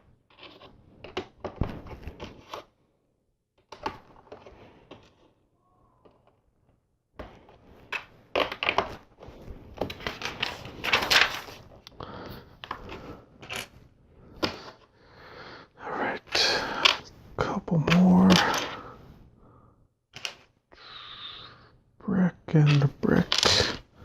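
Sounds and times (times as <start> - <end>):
plastic bricks clicking and clattering: 7.2 - 9.1, 12.6 - 13.7, 20.2 - 20.5, 22.6 - 23.8.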